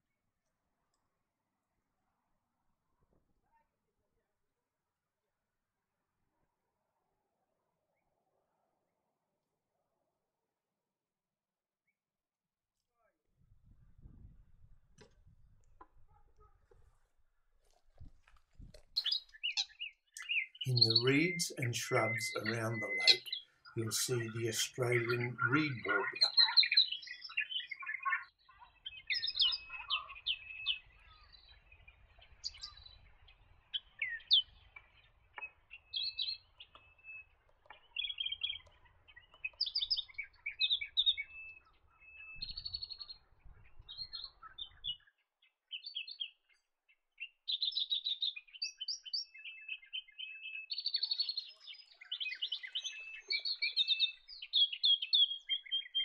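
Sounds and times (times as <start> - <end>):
reed warbler singing: 19.0 - 28.2, 28.8 - 45.1, 47.2 - 56.0.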